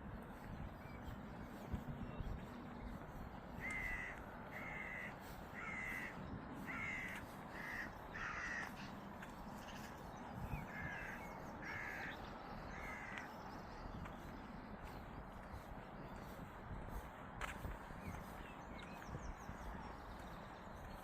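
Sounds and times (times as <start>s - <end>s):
crow cawing: 3.6s - 9.0s, 10.7s - 13.3s.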